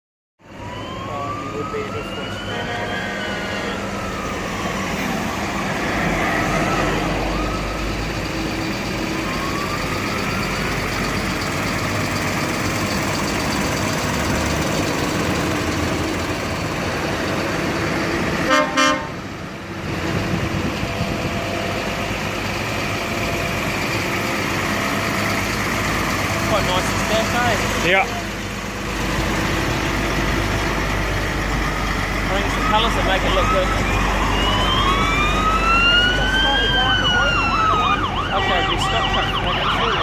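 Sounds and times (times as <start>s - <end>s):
siren wailing: 0.4s - 19.0s, 25.0s - 28.4s, 31.6s - 40.0s
heavy trucks rolling past: 2.3s - 40.0s
truck horn blasts: 2.6s - 3.9s, 18.4s - 19.3s.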